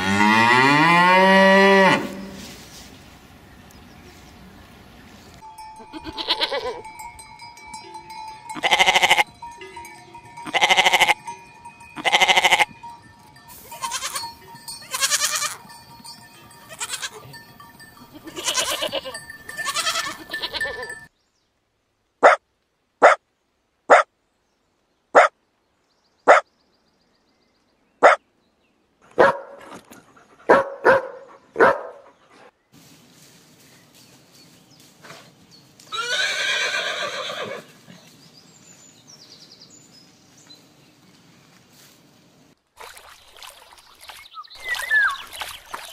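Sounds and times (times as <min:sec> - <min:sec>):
steady ringing tone: 0:05.4 - 0:21.1
livestock calling: 0:05.8 - 0:07.2, 0:07.8 - 0:21.1, 0:35.9 - 0:38.1.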